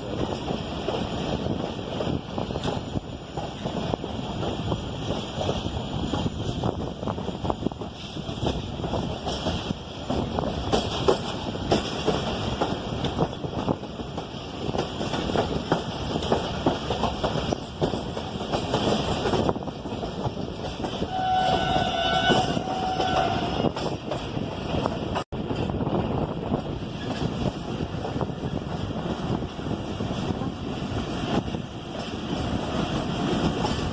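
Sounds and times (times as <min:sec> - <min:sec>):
train wheels clattering on rails: 0:00.0 - 0:33.9
train horn: 0:21.0 - 0:23.9.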